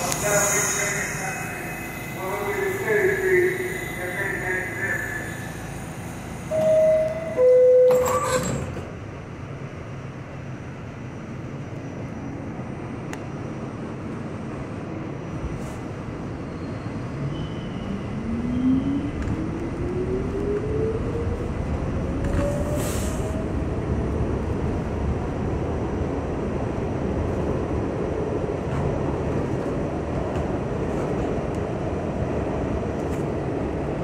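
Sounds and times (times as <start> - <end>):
subway car rumbling: 0.0 - 34.0
train doors closing with a bang: 6.3 - 9.0
two-note door chime: 6.5 - 8.1.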